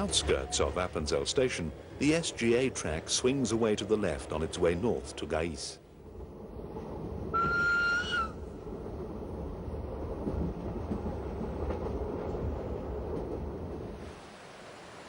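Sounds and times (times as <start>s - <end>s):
train wheels rumbling on track: 0.0s - 14.0s
train horn blast: 7.3s - 8.3s.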